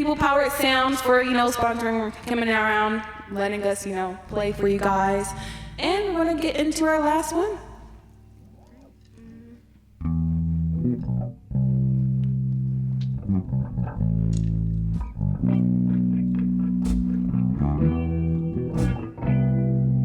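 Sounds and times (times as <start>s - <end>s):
bass guitar notes: 0.0s - 20.0s
electric guitar chords: 10.0s - 20.0s.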